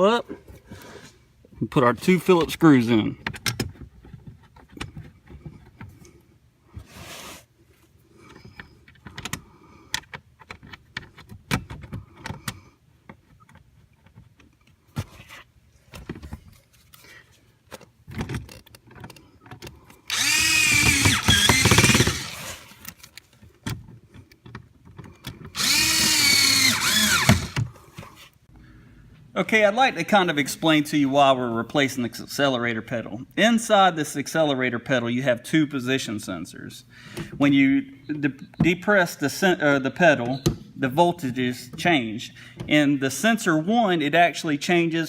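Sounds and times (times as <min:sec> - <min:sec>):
power screwdriver motor whirring: 0:20.1 - 0:22.8, 0:25.6 - 0:27.6.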